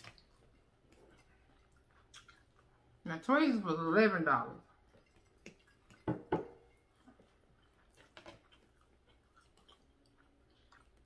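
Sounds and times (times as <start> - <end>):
chewing: 0.0 - 3.0, 4.6 - 11.0.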